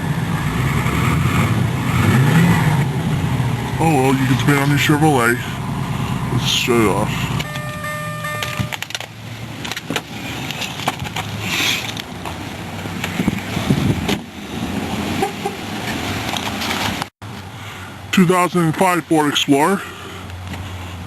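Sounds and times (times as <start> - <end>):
car engine idling: 0.0 - 13.0
steady electronic tone: 4.8 - 8.8.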